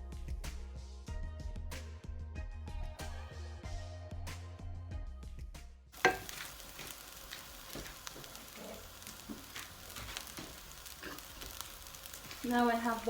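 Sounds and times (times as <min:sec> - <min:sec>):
background music: 0:00.0 - 0:06.4
rice sizzling in oil: 0:06.0 - 0:13.0
stirring clicks: 0:06.0 - 0:13.0.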